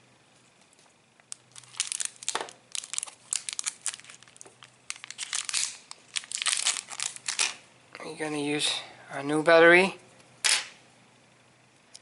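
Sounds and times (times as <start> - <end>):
plastic packaging crinkling: 1.3 - 7.6.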